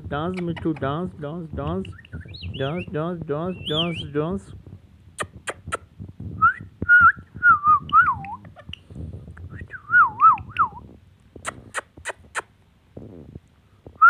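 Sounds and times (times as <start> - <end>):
parrot whistling warbling notes: 3.5 - 4.1.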